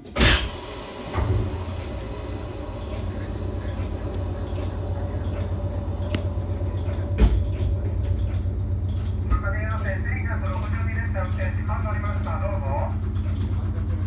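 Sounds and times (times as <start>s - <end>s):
train car equipment humming: 0.0s - 14.0s
thump: 7.0s - 7.7s.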